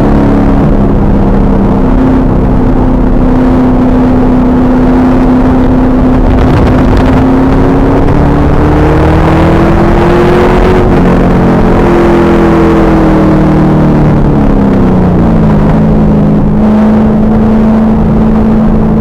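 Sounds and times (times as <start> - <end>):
car engine at speed: 0.0 - 19.0
wind buffeting microphone: 0.2 - 13.1.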